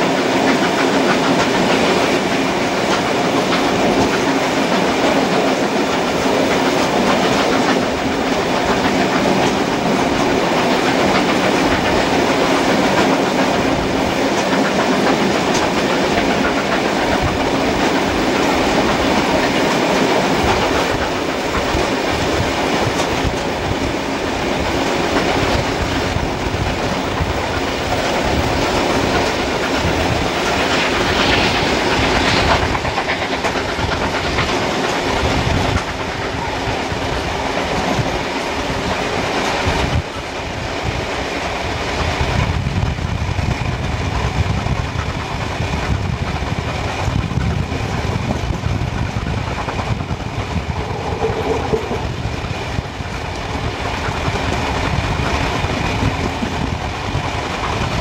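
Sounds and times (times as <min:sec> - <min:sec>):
rushing noise: 0:00.0 - 0:37.3, 0:47.8 - 0:54.2
train wheels clickety-clack: 0:00.0 - 0:58.0.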